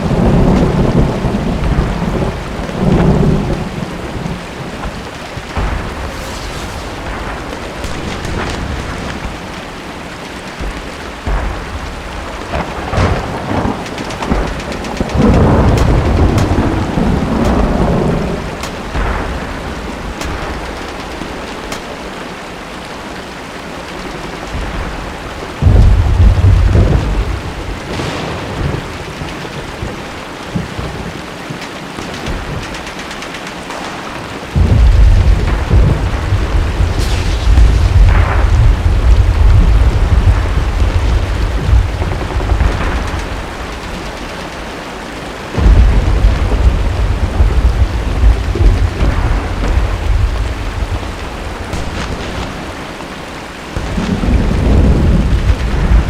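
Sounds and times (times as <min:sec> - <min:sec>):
sharp thunder cracks: 0:00.0 - 0:22.2, 0:24.2 - 0:56.0
rolling thunder: 0:00.0 - 0:56.0
steady rain: 0:00.0 - 0:56.0.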